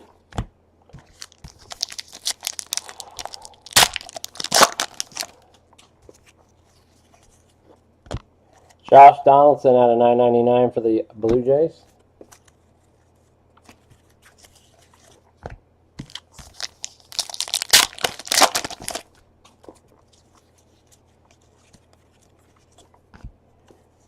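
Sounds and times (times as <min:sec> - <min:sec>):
foil wrapper tearing and crinkling: 0:01.1 - 0:05.4, 0:16.1 - 0:19.1.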